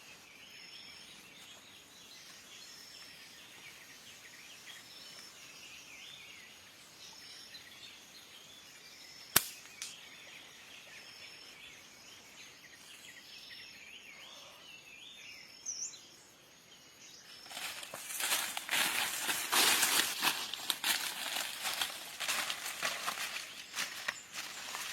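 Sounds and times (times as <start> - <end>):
insects chirping: 0.0 - 24.9
small birds chirping: 0.0 - 24.9
sharp snap: 9.3 - 10.0
crackling rustle: 17.4 - 24.9.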